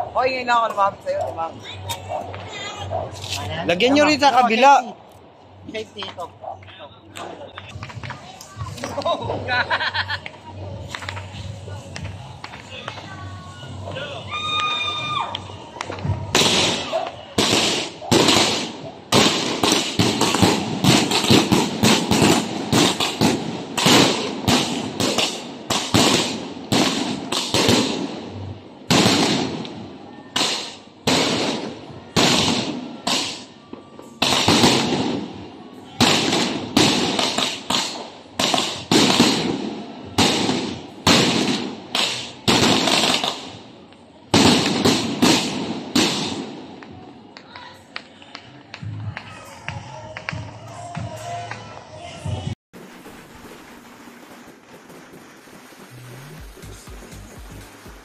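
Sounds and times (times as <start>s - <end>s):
firework bangs with echo: 16.2s - 35.4s, 36.0s - 43.7s, 44.3s - 47.0s, 52.8s - 58.0s.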